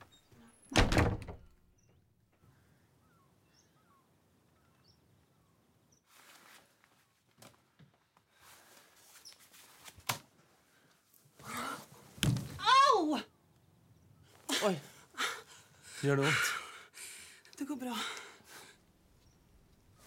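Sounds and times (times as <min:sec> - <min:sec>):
distant bird chirps: 0:01.8 - 0:06.1.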